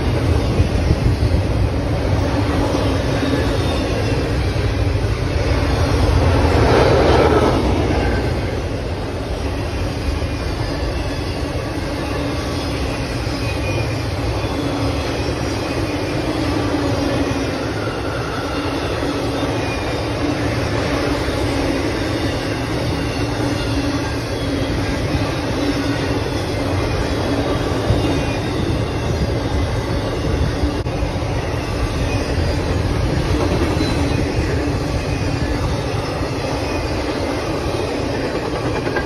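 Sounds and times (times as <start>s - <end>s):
steel wheels rumbling on rail: 0.0s - 39.0s
faint wheel squeal: 9.5s - 39.0s.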